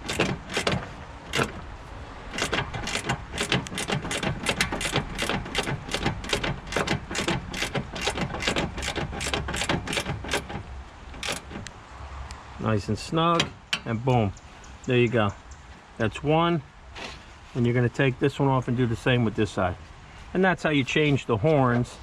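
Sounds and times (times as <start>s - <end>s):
socket ratchet clicking: 0.0s - 1.6s, 2.3s - 10.6s, 11.2s - 11.7s.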